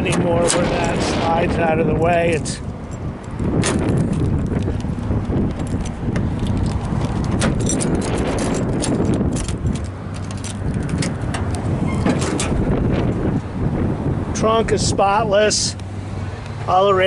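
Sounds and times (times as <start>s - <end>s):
handling clicks and knocks: 0.0s - 1.0s, 2.7s - 12.7s
wind rumbling on microphone: 0.0s - 16.5s.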